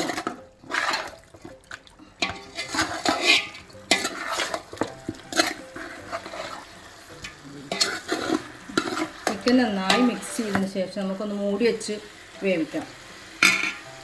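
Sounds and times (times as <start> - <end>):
chicken being stirred in a pot: 0.0 - 12.3
spoon scraping and knocking on metal: 2.2 - 6.6, 7.7 - 10.6.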